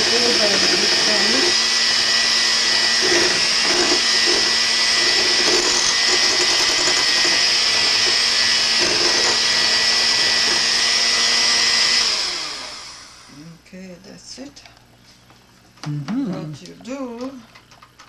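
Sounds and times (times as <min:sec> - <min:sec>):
electric mixer motor whine: 0:00.0 - 0:13.5.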